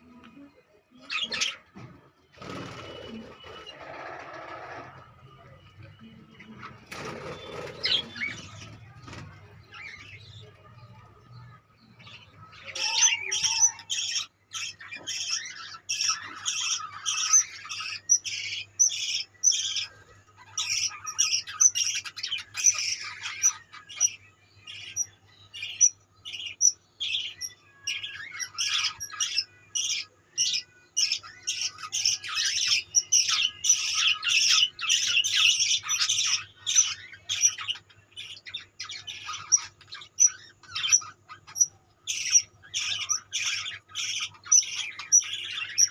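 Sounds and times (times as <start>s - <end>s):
budgerigars chattering and squawking: 6.4s - 9.2s, 12.6s - 45.9s.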